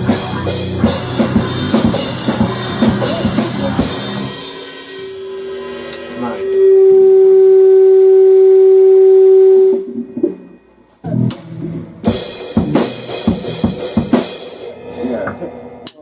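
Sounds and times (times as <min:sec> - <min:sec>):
drum kit playing: 0:00.0 - 0:07.6, 0:09.6 - 0:16.0
loud steady tone: 0:00.0 - 0:11.3
cymbals washing: 0:00.0 - 0:16.0.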